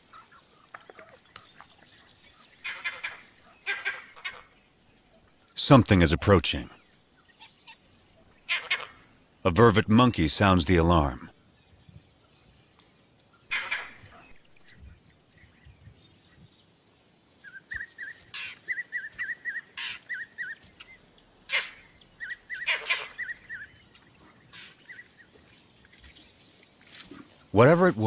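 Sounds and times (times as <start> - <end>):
monkey alarm calls: 2.6 - 4.5, 7.4 - 9.0, 13.4 - 14.4, 17.4 - 25.3.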